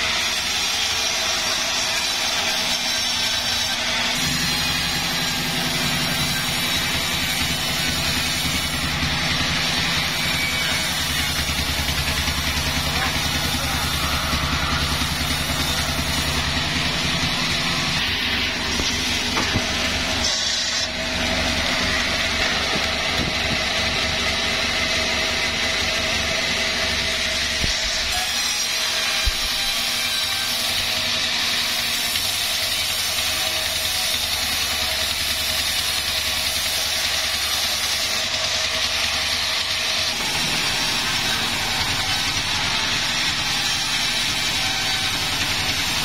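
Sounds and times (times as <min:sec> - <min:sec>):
saw running: 0:00.0 - 0:46.0
engine thrumming: 0:04.2 - 0:28.1.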